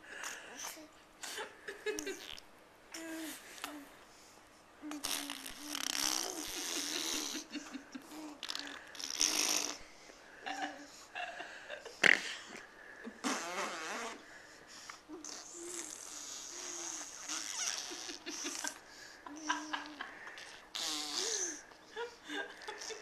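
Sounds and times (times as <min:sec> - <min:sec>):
baby blowing raspberries: 0:04.9 - 0:07.5, 0:08.2 - 0:09.9, 0:13.2 - 0:14.3, 0:15.2 - 0:18.8, 0:20.4 - 0:21.6.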